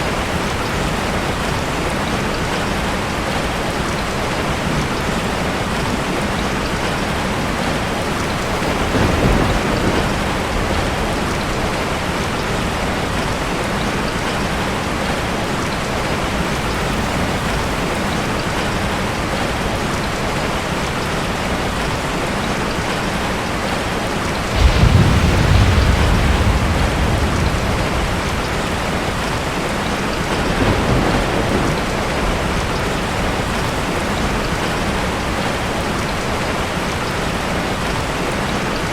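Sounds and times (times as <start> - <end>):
thunder rumbling: 0.0 - 22.9, 24.3 - 37.2
heavy rain: 0.0 - 38.9.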